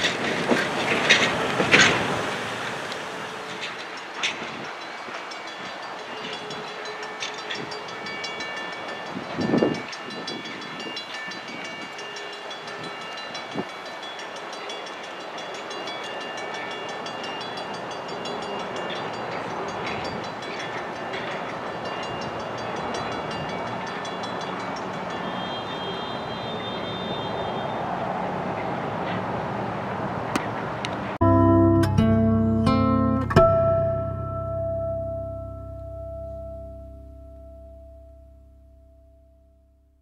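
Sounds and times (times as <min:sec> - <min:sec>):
train wheels rolling on track: 0:00.0 - 0:31.2
fast regular bell ringing: 0:04.0 - 0:26.4.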